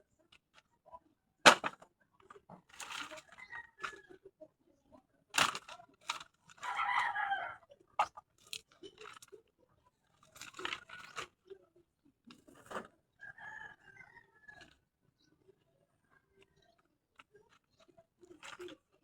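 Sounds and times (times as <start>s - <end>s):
dry vegetation crunching and snapping: 1.5s - 1.8s, 2.7s - 3.4s, 5.4s - 7.1s, 8.0s - 9.2s
chicken calling: 6.6s - 8.2s.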